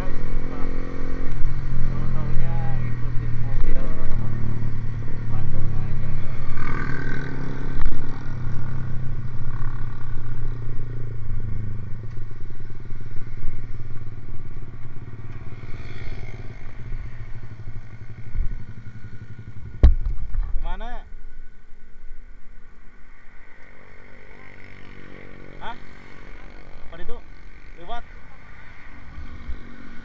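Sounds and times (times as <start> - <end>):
motorcycle engine running: 0.0 - 30.0
sharp knock: 19.8 - 20.2.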